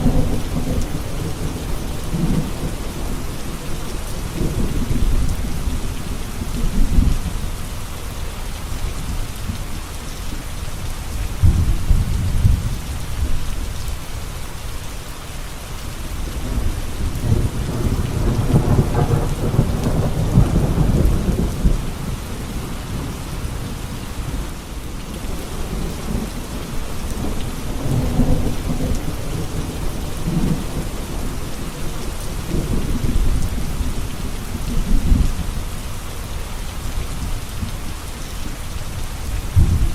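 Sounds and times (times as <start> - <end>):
low rolling thunder: 0.0 - 7.5, 11.3 - 13.7, 16.3 - 35.8, 39.2 - 39.9
steady rain falling: 0.0 - 39.9.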